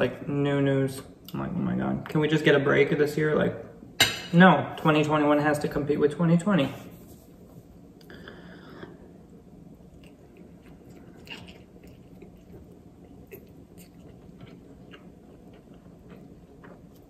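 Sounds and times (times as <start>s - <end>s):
wet chewing: 9.8s - 17.0s.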